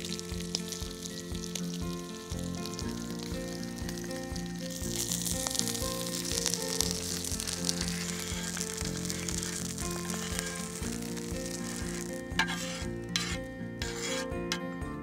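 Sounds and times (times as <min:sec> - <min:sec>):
food sizzling in fat: 0:00.0 - 0:14.6
soft background music: 0:00.0 - 0:15.0
scraping on steel: 0:07.4 - 0:14.6.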